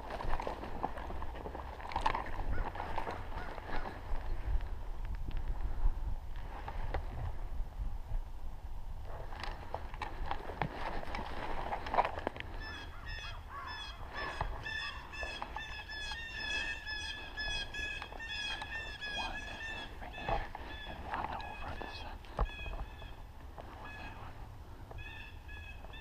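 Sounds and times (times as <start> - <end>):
geese honking: 12.6 - 24.4.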